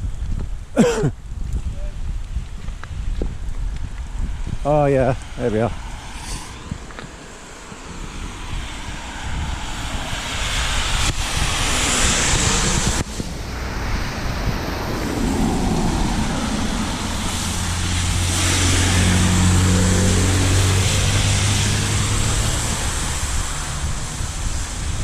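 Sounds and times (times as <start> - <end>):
tyres hissing through water: 5.2 - 8.2
vehicle engine low hum: 5.2 - 25.0.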